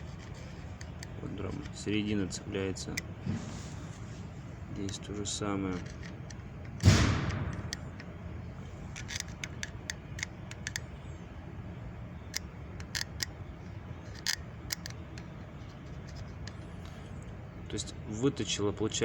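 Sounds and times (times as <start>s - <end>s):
low steady hum: 0.0s - 19.0s
light clicks and taps: 4.7s - 8.1s.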